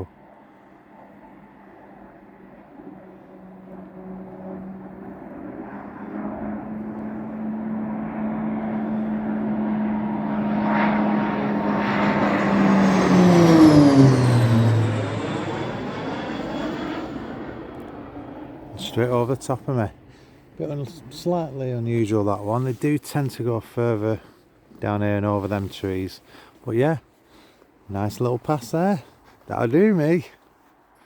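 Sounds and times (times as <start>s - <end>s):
aircraft passing overhead: 0.0s - 31.0s.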